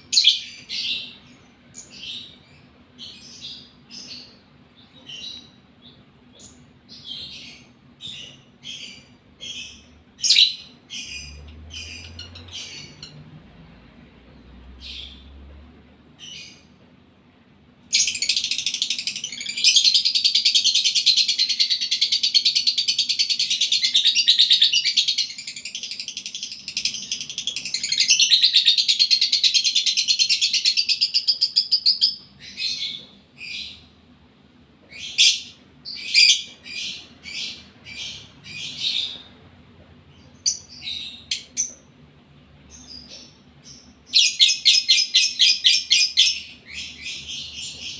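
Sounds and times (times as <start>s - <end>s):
bird chirps: 0.0s - 13.2s.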